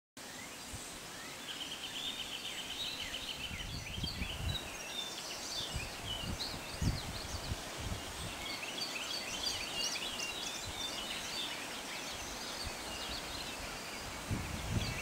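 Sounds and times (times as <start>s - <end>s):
background hiss: 0.2s - 15.0s
songbirds singing: 0.2s - 15.0s
wind buffeting microphone: 3.4s - 4.8s, 5.6s - 8.5s, 12.6s - 15.0s.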